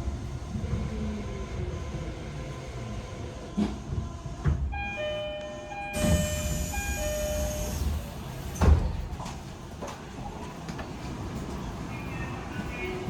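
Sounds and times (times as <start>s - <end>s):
low train rumble: 0.0s - 13.0s
train doors closing with hiss: 3.5s - 13.0s
descending two-note door chime: 4.8s - 7.8s.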